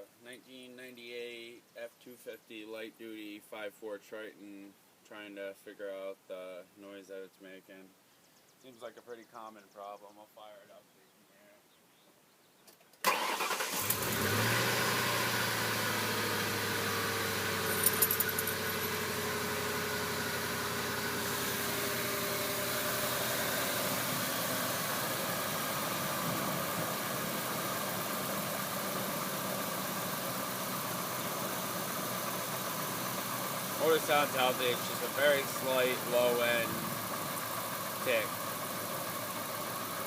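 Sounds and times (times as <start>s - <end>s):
engine idling with slight tick: 24.9s - 40.0s.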